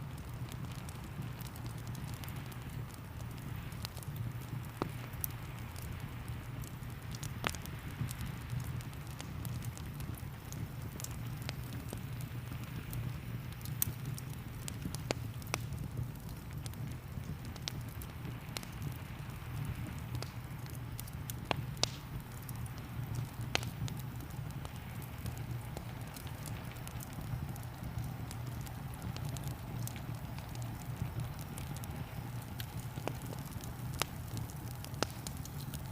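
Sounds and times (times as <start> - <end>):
wood fire crackling: 0.0 - 35.9.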